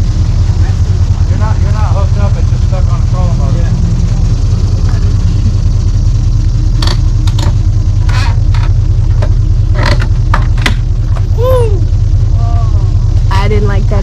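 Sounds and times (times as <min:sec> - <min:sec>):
engine idling: 0:00.0 - 0:14.0
sharp knocks and clanks: 0:06.7 - 0:11.3.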